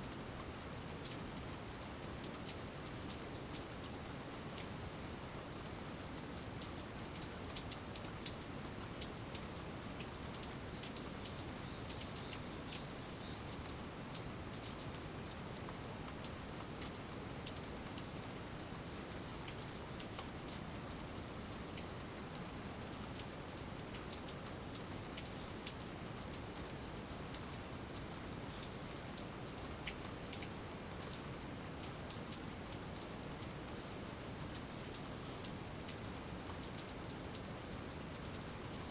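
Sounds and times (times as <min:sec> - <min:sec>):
steady rain hiss: 0:00.0 - 0:38.9
raindrops ticking: 0:00.4 - 0:38.8.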